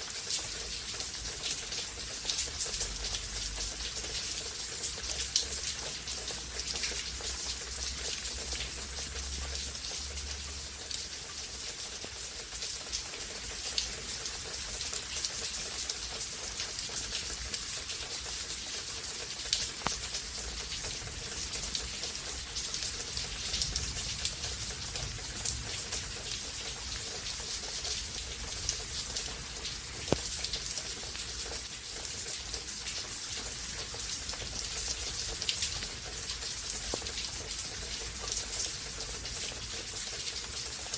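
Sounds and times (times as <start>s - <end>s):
raindrops ticking on surfaces: 0.0s - 40.9s
steady rainfall: 0.0s - 40.9s.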